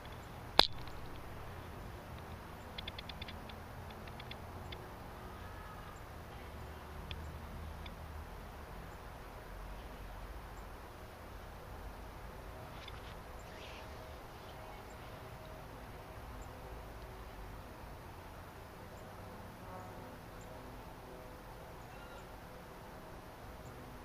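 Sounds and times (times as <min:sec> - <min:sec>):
low background rumble and hiss: 0:00.0 - 0:24.0
small birds chirping: 0:09.7 - 0:10.8, 0:12.6 - 0:16.7, 0:21.7 - 0:22.4.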